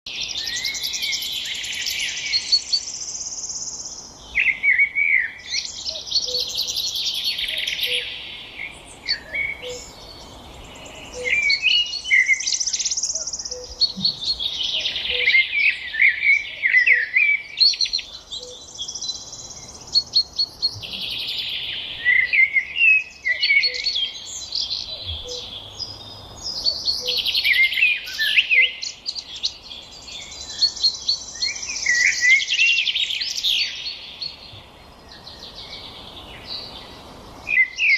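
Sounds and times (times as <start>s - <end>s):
songbirds singing: 0.1s - 37.9s.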